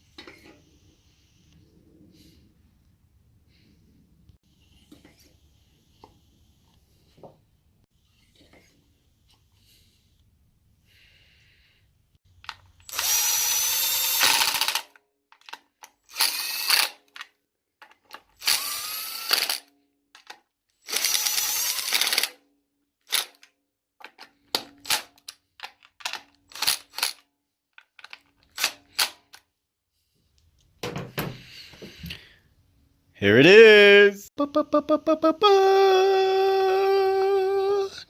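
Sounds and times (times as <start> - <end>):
power drill whining: 12.7 - 14.9, 16.1 - 17.0, 18.4 - 19.7, 20.8 - 22.4.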